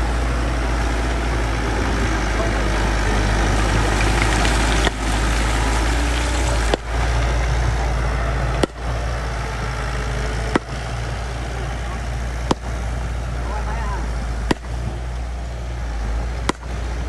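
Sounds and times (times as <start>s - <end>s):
bulldozer diesel engine droning: 0.0s - 17.0s.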